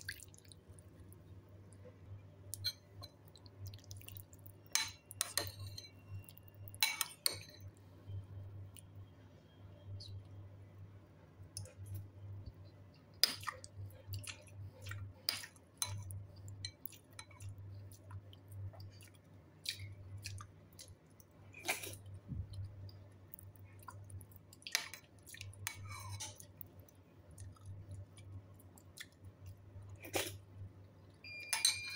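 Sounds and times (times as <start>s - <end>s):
person chewing: 13.0s - 21.0s.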